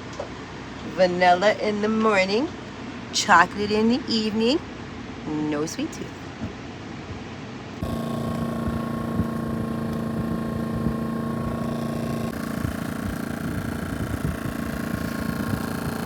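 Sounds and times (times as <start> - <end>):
vehicle engine running: 7.8 - 16.0.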